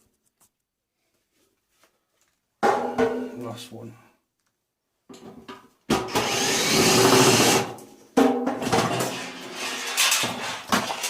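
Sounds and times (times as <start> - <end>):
power drill running: 6.1 - 7.7.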